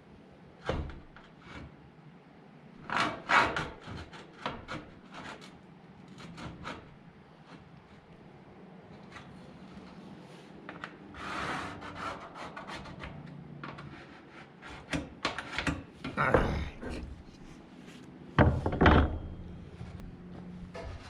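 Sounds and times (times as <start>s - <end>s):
handling knocks and scrapes: 2.9s - 21.0s
loud thumps: 18.4s - 20.0s.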